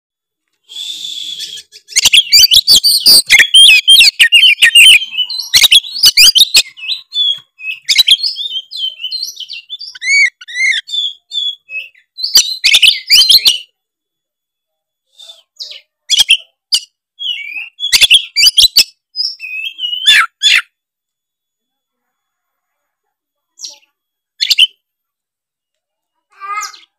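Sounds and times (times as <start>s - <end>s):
whistled bird notes: 0.6s - 13.8s, 15.0s - 20.7s, 23.6s - 24.8s
magpie-robin singing: 1.2s - 13.7s, 15.2s - 20.7s, 23.5s - 24.8s, 26.3s - 26.9s
bird chattering trills: 1.3s - 13.7s
sharp bird clicking calls: 1.4s - 8.5s.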